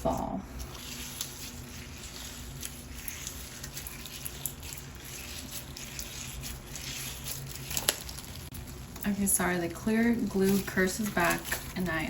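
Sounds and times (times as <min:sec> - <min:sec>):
slime squished by hand: 0:00.6 - 0:09.0
small crackles and clicks: 0:00.6 - 0:12.0.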